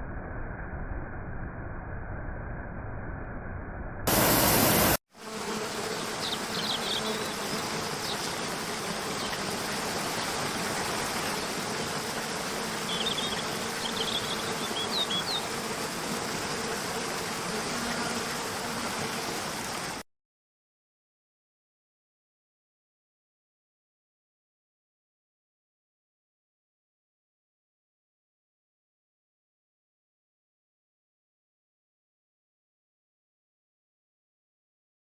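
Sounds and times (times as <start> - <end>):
loud rush of noise: 4.1 - 5.0
water rushing: 4.1 - 5.0, 7.6 - 13.9, 18.5 - 20.0
high bird chirps: 5.8 - 7.4, 12.9 - 15.4.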